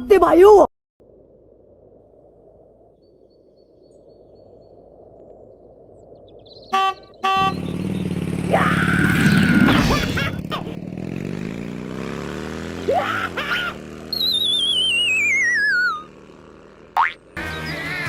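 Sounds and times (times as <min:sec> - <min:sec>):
horn honking: 0:06.7 - 0:10.8
motorcycle engine running: 0:07.3 - 0:18.0.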